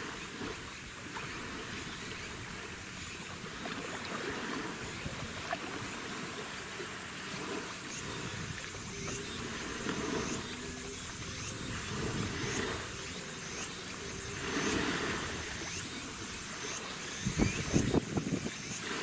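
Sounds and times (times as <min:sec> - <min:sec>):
boat engine rumble: 0:00.0 - 0:18.7
water and waves washing: 0:00.0 - 0:19.0.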